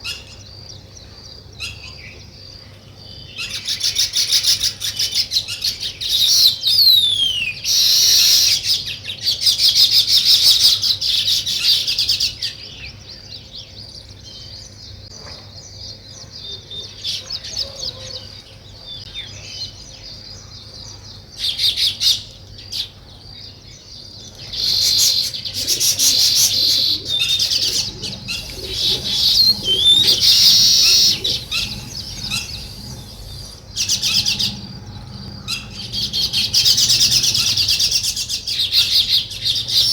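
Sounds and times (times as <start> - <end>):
birds chattering in high chirps: 24.0 - 39.9.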